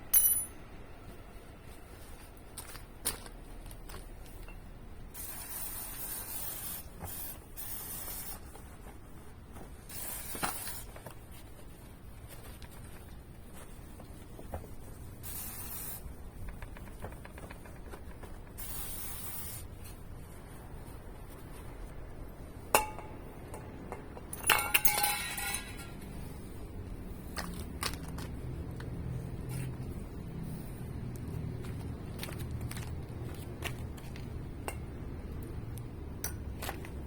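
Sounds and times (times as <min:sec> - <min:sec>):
small metal objects clinking: 0:00.1 - 0:00.6, 0:24.3 - 0:26.1.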